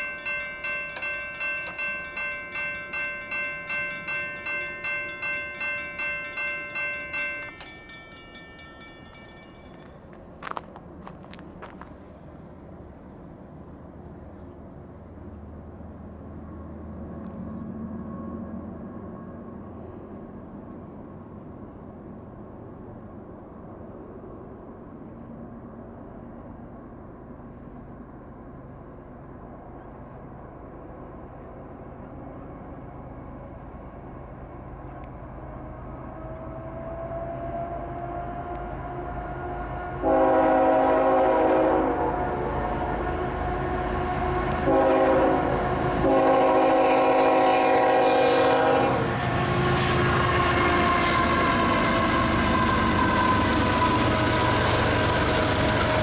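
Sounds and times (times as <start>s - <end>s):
diesel locomotive engine rumble: 0.0s - 56.0s
train horn blasts: 36.3s - 54.6s.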